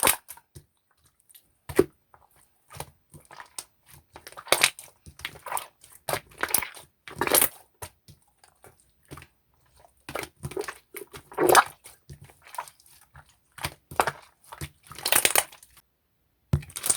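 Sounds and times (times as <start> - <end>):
slime squishing and popping: 2.7 - 8.7, 10.0 - 15.8, 16.6 - 16.9.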